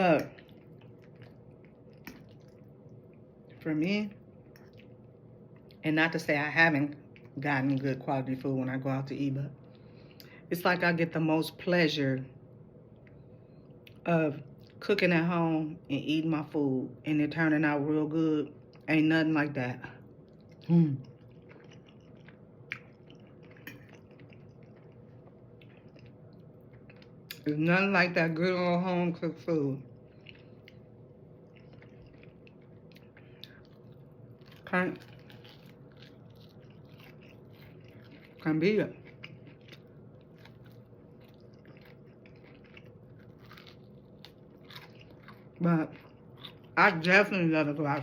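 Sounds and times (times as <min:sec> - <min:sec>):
person chewing food: 0:00.2 - 0:03.5, 0:04.2 - 0:05.8, 0:20.1 - 0:27.5, 0:29.9 - 0:46.8.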